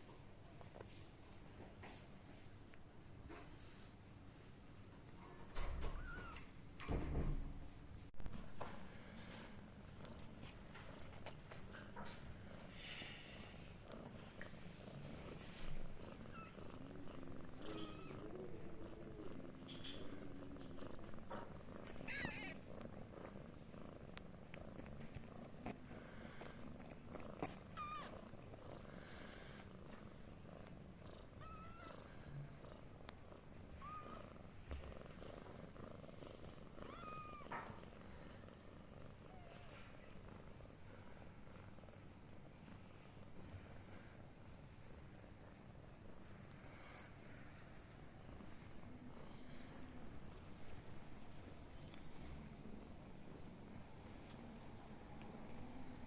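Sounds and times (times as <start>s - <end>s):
cat purring: 8.9s - 56.0s
kittens mewing: 21.9s - 22.7s.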